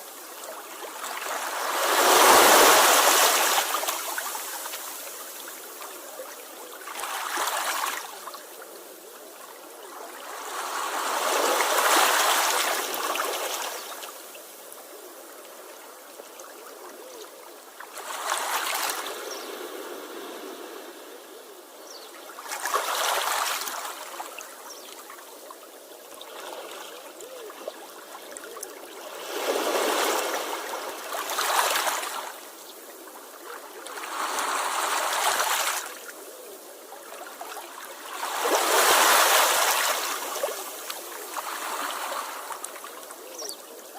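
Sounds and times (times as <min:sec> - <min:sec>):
sea waves washing in: 0:00.0 - 0:06.0, 0:10.0 - 0:14.6, 0:17.6 - 0:21.8, 0:28.9 - 0:43.2
hiss of moving water: 0:00.0 - 0:16.1, 0:16.8 - 0:22.0.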